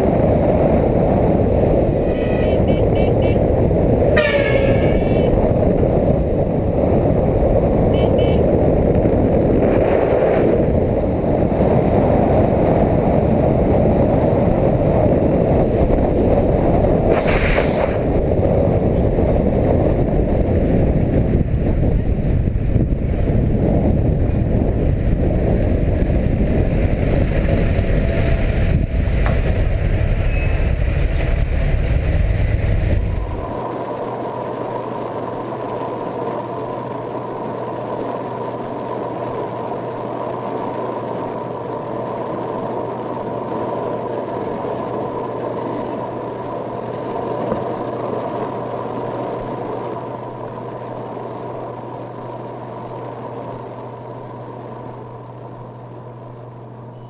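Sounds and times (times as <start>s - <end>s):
wind and road noise: 0.0s - 57.0s
vehicle horn: 2.0s - 5.4s, 7.9s - 8.6s.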